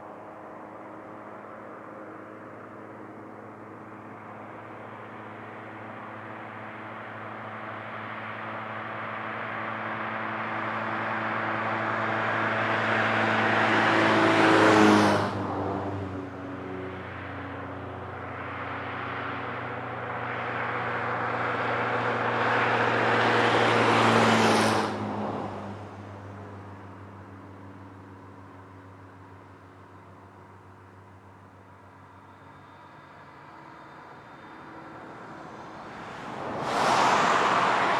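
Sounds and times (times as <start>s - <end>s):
vehicles passing at speed: 7.6s - 27.3s, 32.7s - 37.9s.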